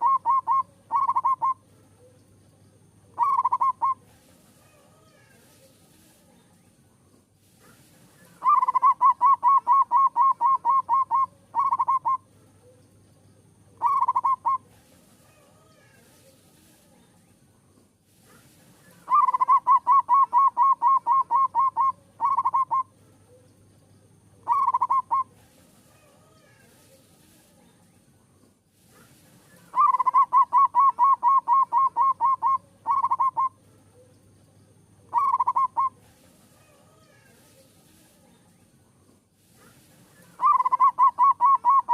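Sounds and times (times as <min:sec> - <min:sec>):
dove cooing: 0:00.0 - 0:01.6, 0:03.1 - 0:04.1, 0:08.3 - 0:12.3, 0:13.8 - 0:14.7, 0:18.9 - 0:23.4, 0:24.4 - 0:26.3, 0:29.5 - 0:33.6, 0:35.1 - 0:37.2, 0:40.2 - 0:41.9.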